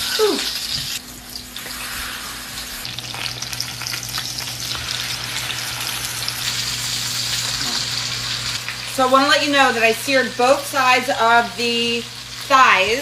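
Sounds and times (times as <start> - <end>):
chicken sizzling in a pan: 0.0 - 13.0
crackling oil spatter: 2.5 - 9.0.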